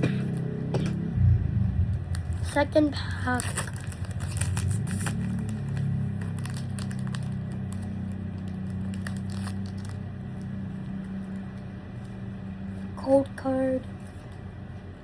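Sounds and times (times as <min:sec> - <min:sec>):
steady low hum: 0:00.0 - 0:15.0
foil wrapper crinkling and tearing: 0:02.1 - 0:10.6.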